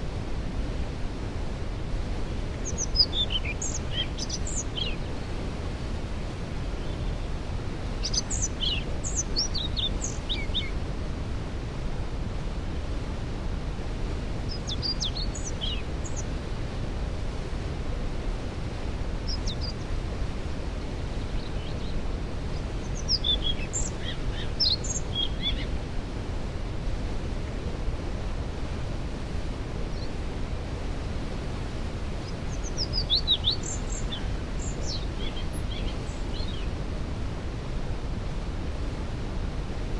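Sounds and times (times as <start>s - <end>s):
waterfall rushing: 0.1s - 39.9s
songbirds singing: 2.1s - 10.8s, 14.3s - 16.6s, 18.8s - 26.1s, 28.7s - 37.1s.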